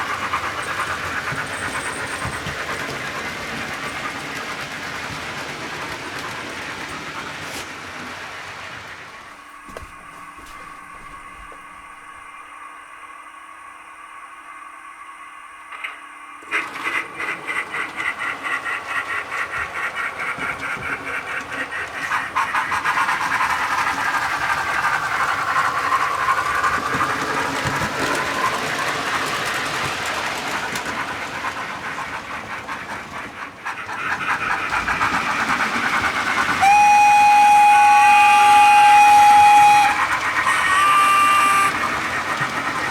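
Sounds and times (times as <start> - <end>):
steam engine chuffing: 0.0 - 42.9
steam whistle: 35.8 - 42.6.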